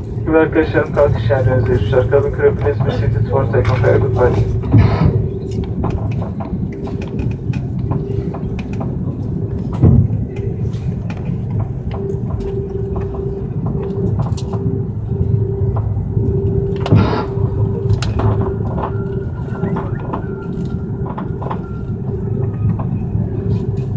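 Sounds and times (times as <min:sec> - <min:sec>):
aircraft cabin low rumble: 0:00.0 - 0:23.9
hum: 0:00.0 - 0:23.9
heavy thumps: 0:04.5 - 0:07.2, 0:16.6 - 0:19.0.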